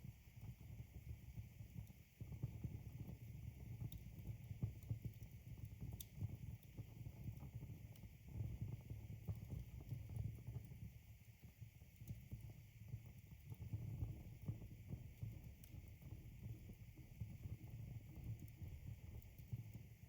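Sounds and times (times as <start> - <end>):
flames rumbling: 14.0 - 19.8.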